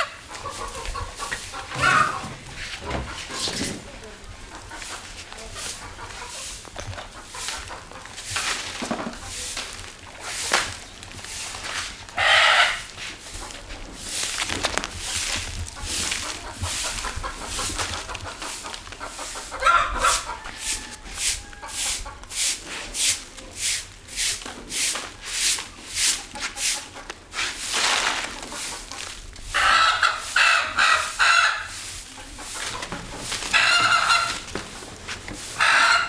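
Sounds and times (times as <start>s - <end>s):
broom sweeping: 0.3s - 4.1s, 4.7s - 36.0s
rooster crowing: 19.6s - 21.7s.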